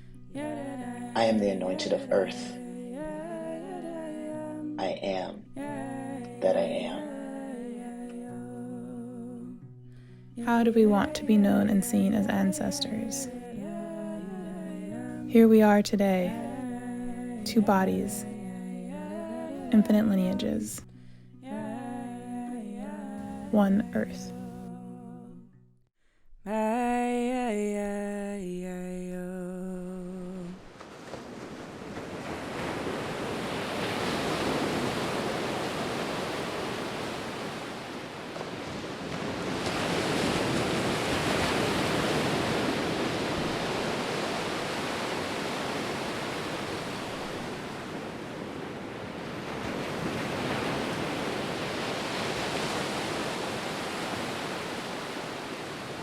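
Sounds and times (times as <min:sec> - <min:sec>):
person humming: 0:00.8 - 0:09.6, 0:10.5 - 0:20.8, 0:21.5 - 0:25.5
ocean waves washing in: 0:10.4 - 0:20.6, 0:30.3 - 0:56.0.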